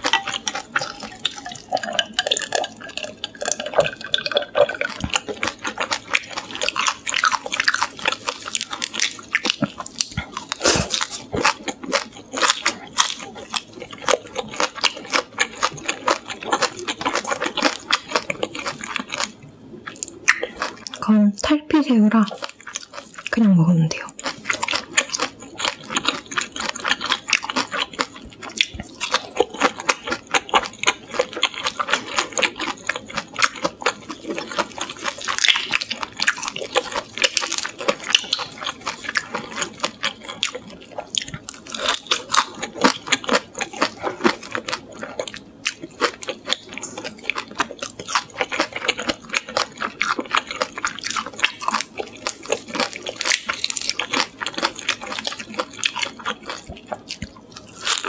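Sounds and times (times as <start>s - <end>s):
wet chewing and crunching: 0.0s - 21.1s, 21.9s - 58.0s.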